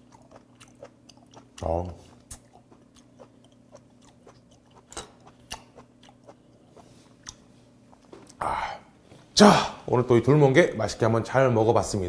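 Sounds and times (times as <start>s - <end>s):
wet chewing: 0.0s - 8.4s.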